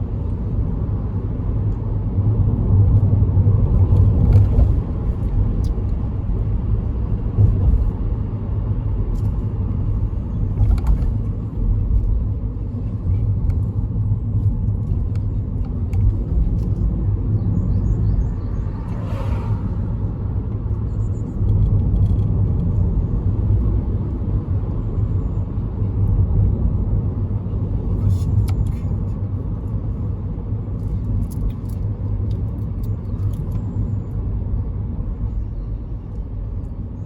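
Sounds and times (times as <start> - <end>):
car road and engine rumble: 0.0 - 37.0.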